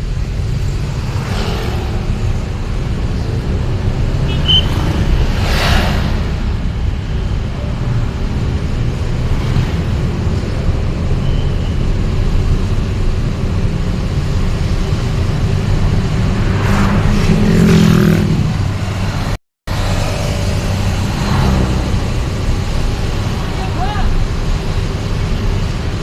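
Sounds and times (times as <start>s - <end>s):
engine and road rumble: 0.0s - 26.0s
vehicle passing: 0.9s - 10.2s, 15.3s - 24.0s.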